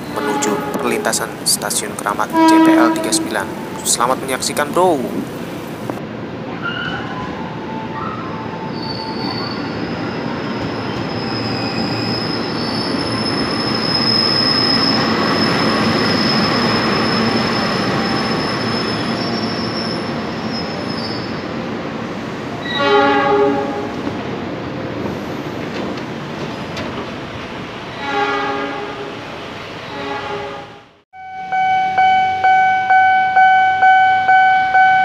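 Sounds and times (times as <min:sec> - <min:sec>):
loud pitched tone: 0:02.3 - 0:04.0, 0:31.2 - 0:35.0
high wheel squeal: 0:06.6 - 0:21.5.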